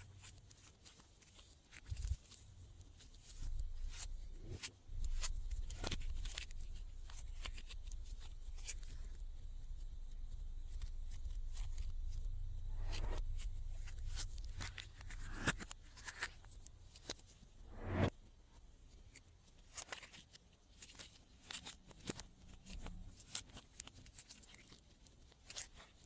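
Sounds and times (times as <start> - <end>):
low rumble of handling: 3.4 - 16.8.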